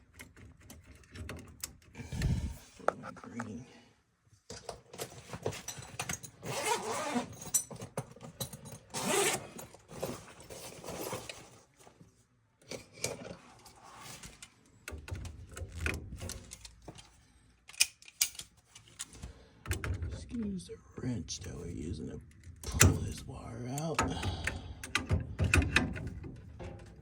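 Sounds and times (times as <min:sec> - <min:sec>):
metal tools clinking and scraping: 0:04.9 - 0:11.6.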